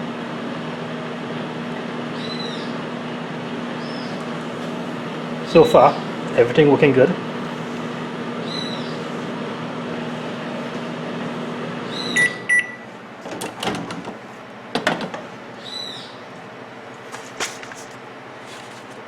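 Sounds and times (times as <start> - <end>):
microwave oven humming: 0.0 - 19.0
short beeps: 12.2 - 12.8.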